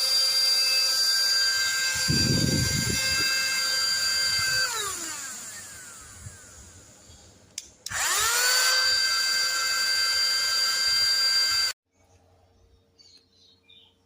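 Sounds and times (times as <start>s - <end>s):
handheld vacuum motor whine: 0.0s - 6.8s, 7.9s - 11.8s.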